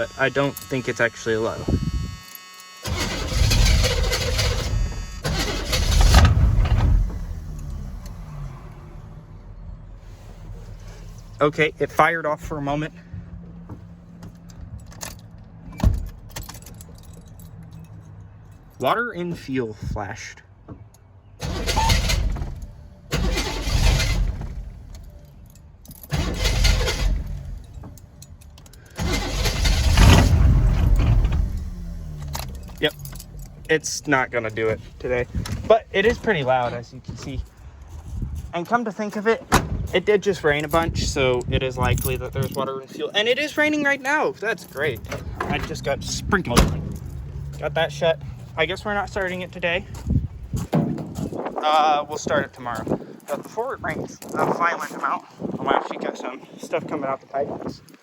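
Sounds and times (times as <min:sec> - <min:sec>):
engine starter cranking: 0:00.0 - 0:09.1, 0:21.4 - 0:34.7
truck engine cranking: 0:00.0 - 0:12.9, 0:14.2 - 0:18.8, 0:20.8 - 0:38.4, 0:39.5 - 0:51.6.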